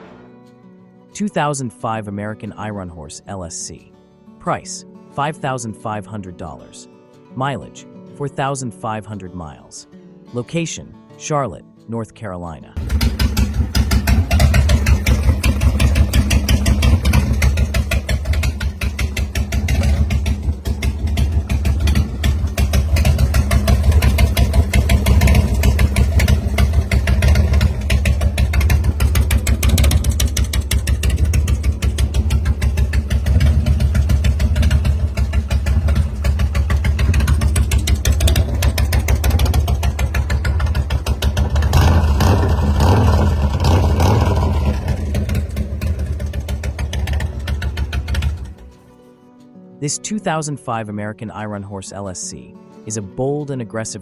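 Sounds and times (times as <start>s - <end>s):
motorcycle engine idling: 12.8s - 48.8s.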